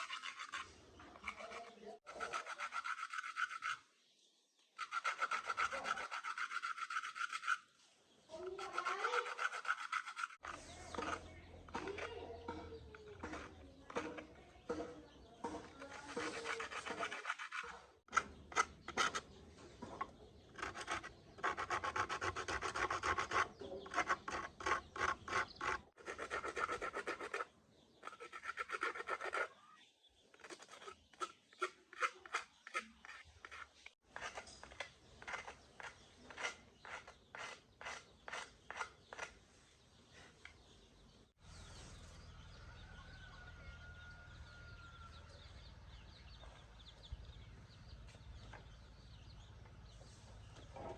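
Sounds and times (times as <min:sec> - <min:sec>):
hand tool scraping metal part: 0:00.0 - 0:03.8, 0:04.8 - 0:07.7, 0:08.4 - 0:29.6, 0:30.4 - 0:39.4.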